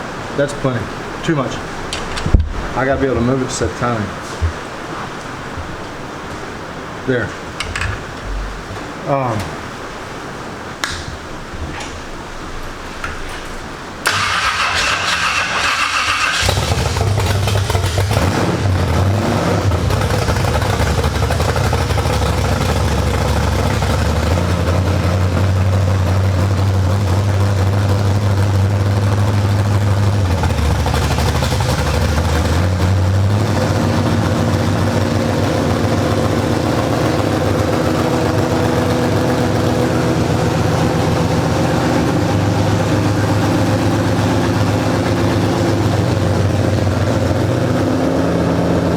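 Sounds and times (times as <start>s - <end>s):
starter motor cranking engine: 14.0s - 48.7s
race car engine running: 14.0s - 48.9s.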